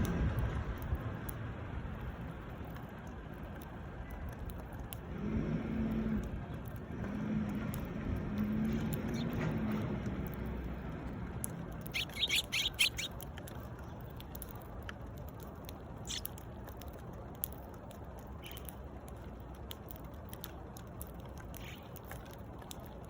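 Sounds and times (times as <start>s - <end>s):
low background noise: 0.0s - 23.0s
sparrows chirping: 8.4s - 10.0s, 11.8s - 13.2s, 16.0s - 16.3s, 21.5s - 22.0s.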